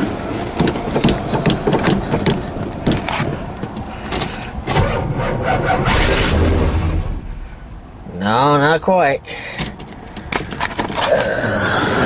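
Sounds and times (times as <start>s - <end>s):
uneven knocks: 0.6s - 3.8s.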